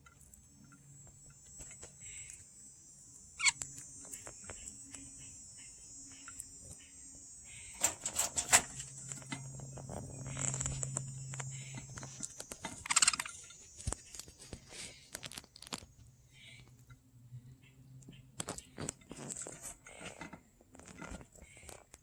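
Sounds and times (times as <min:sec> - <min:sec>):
budgies pecking at broccoli: 0:00.0 - 0:22.0
budgie chirps: 0:03.4 - 0:15.1.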